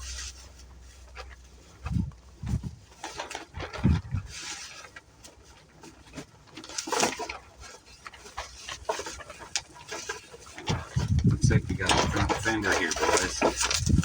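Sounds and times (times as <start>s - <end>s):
packaging rustling and crinkling: 0.0s - 14.0s
wind buffeting microphone: 1.8s - 2.8s, 3.6s - 4.4s, 10.7s - 14.0s.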